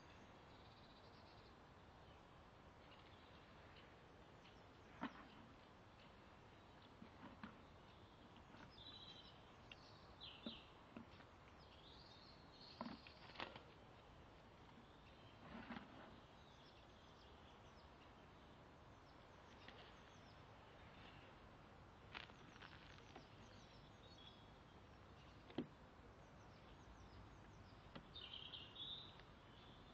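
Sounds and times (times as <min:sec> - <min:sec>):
distant bird chirps: 0:00.0 - 0:14.0, 0:14.7 - 0:29.9
rustling: 0:22.1 - 0:23.5.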